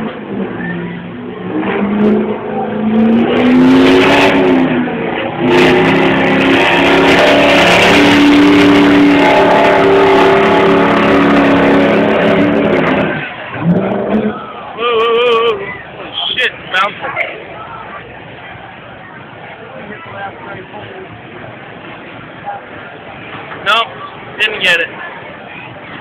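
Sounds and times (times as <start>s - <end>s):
diesel truck engine at full throttle: 0.0s - 26.0s.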